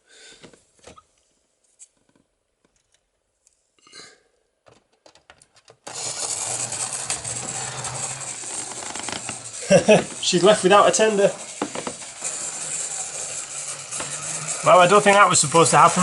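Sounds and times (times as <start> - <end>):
model train motor hum and rattle: 5.8 - 16.0.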